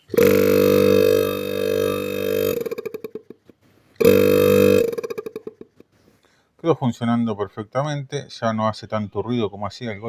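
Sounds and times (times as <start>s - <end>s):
refrigerator compressor humming: 0.0s - 3.0s, 4.0s - 5.3s.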